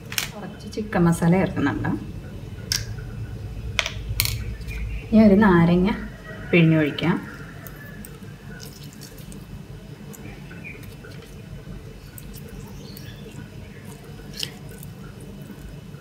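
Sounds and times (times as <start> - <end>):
juice dripping: 0.0 - 16.0
lemon squelching: 7.2 - 15.8.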